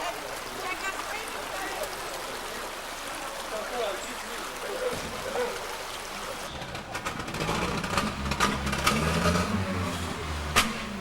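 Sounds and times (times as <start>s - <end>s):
engine rumbling: 6.0s - 11.0s.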